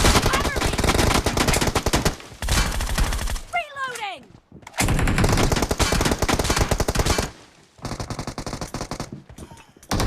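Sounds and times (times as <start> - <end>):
rapid automatic gunfire: 0.0 - 3.5, 4.8 - 9.1.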